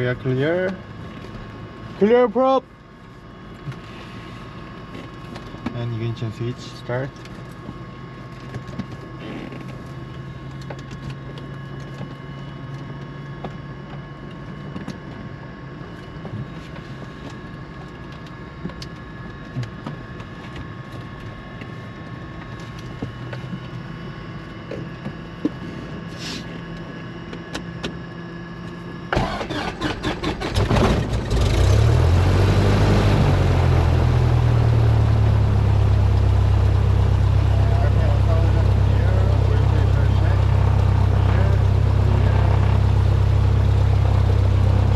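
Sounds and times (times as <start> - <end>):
electrical hum with tones: 0.0 - 44.9
aircraft piston engine running: 29.1 - 44.9.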